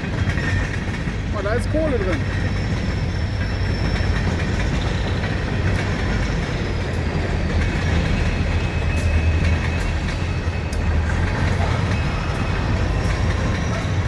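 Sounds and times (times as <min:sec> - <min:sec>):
train rumbling on rails: 0:00.0 - 0:14.0
high wheel squeal: 0:02.4 - 0:05.4, 0:06.0 - 0:14.0
sharp track clicks: 0:04.6 - 0:14.0.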